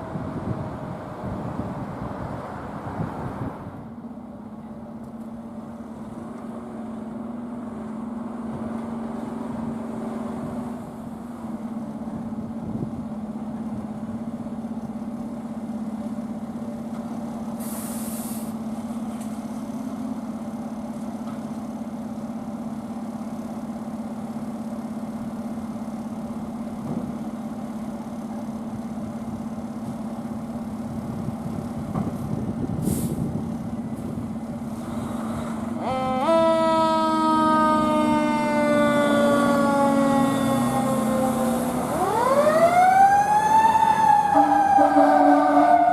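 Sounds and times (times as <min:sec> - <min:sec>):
diesel engine idling: 0:03.6 - 0:36.4
air brake hisses: 0:17.6 - 0:18.6, 0:32.8 - 0:33.3.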